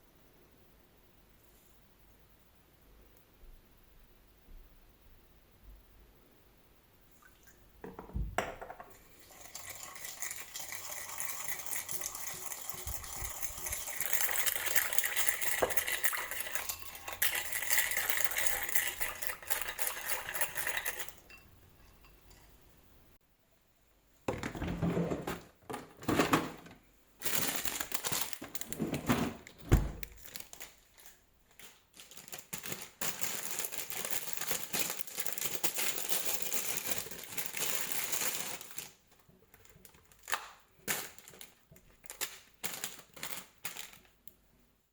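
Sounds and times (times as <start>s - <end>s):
dishes and utensils clinking: 11.2s - 22.6s
rustling: 24.4s - 44.2s.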